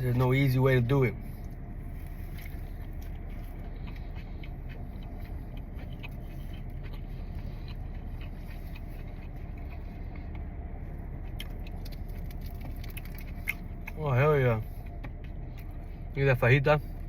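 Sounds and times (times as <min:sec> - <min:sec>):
car idling rumble: 0:00.0 - 0:17.0.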